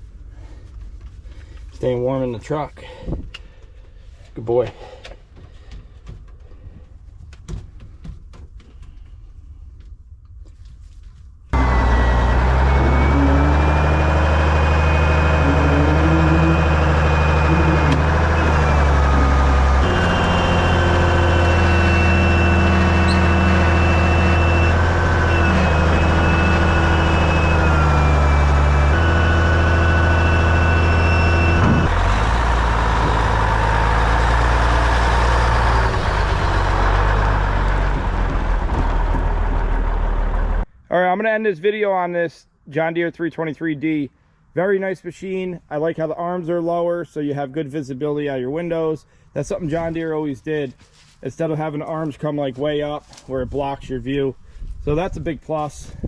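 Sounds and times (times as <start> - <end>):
engine whine shifting pitch: 11.6 - 40.7
heavy engine running: 11.6 - 40.7.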